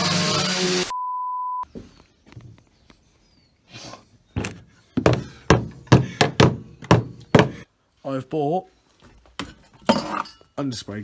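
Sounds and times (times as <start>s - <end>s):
short beep: 0.9s - 1.7s
sharp knocks: 4.4s - 7.6s.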